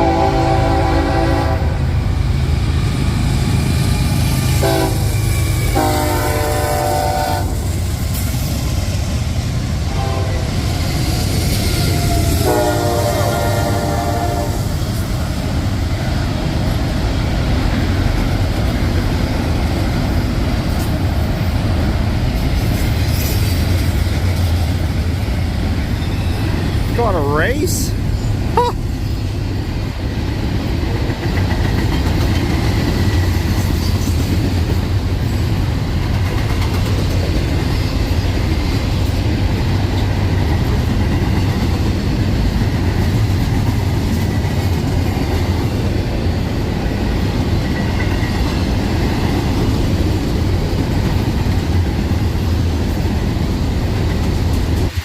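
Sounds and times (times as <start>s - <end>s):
locomotive air horn blasts: 0.0s - 1.9s, 4.6s - 7.6s, 9.9s - 10.5s, 12.4s - 14.6s
freight train rumbling past: 0.0s - 55.0s.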